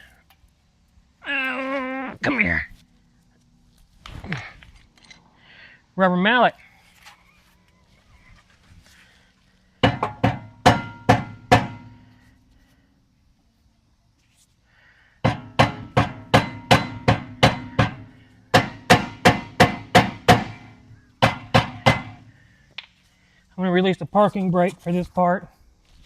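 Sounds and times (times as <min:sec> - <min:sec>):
rubber mallet striking brake rotor: 0:09.8 - 0:12.0, 0:15.3 - 0:22.3.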